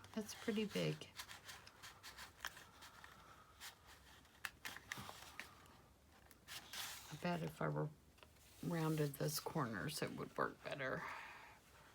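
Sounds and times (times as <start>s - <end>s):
paper and card handling: 0.0s - 7.4s.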